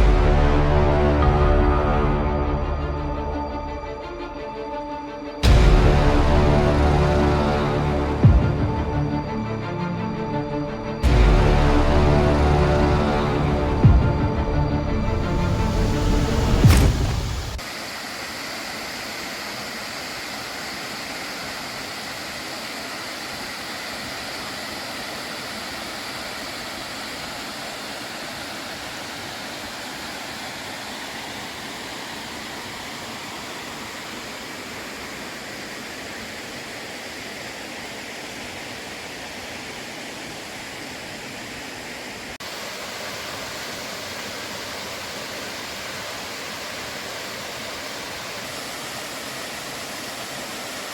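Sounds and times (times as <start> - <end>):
waterfall roaring: 15.3 - 50.9.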